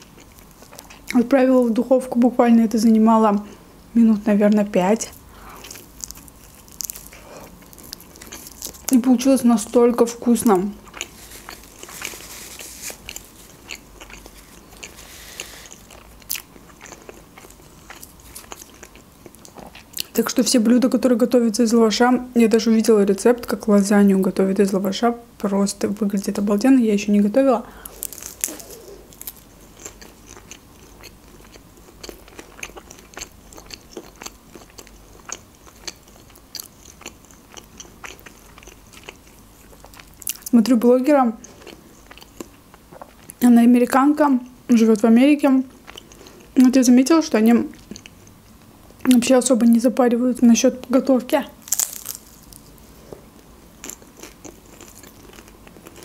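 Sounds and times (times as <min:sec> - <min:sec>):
person chewing food: 0:00.0 - 0:01.2, 0:05.1 - 0:09.0, 0:10.8 - 0:20.2, 0:27.8 - 0:40.5, 0:41.4 - 0:43.4, 0:45.7 - 0:46.6, 0:47.7 - 0:49.1, 0:51.6 - 0:56.0.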